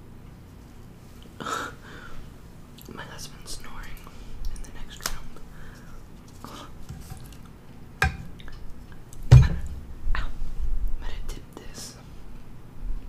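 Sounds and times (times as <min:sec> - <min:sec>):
deep thump: 0:09.3 - 0:10.0.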